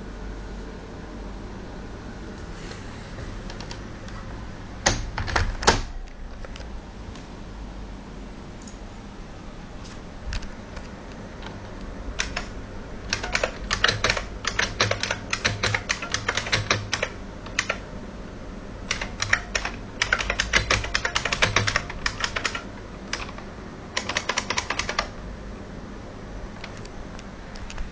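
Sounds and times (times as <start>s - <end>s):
keyboard keys clicking: 12.2s - 17.8s, 18.9s - 25.1s.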